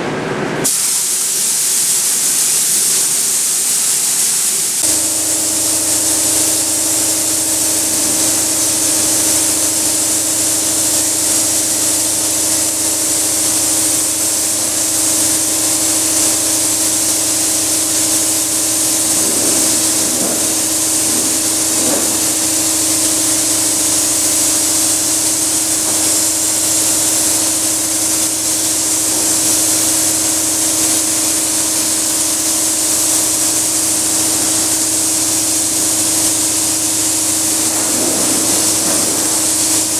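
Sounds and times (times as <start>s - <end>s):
spray gun hissing: 0.6s - 39.9s
low hum: 17.2s - 31.4s.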